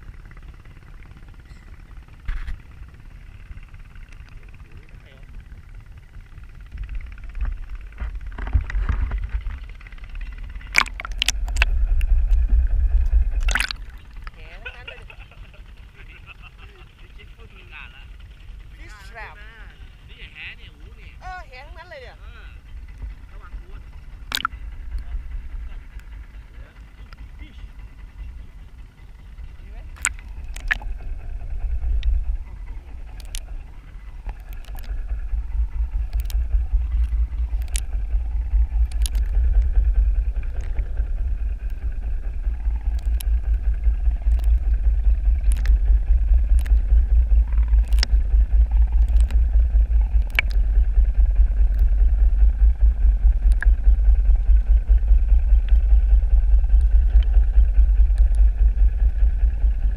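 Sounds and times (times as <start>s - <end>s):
underwater motor rumble pulsing: 0.0s - 59.9s
sharp clicks: 24.2s - 25.2s, 30.0s - 31.0s, 33.1s - 33.5s, 34.2s - 35.0s, 35.9s - 38.0s, 38.8s - 39.8s, 42.6s - 43.4s, 44.0s - 52.0s, 52.8s - 59.2s.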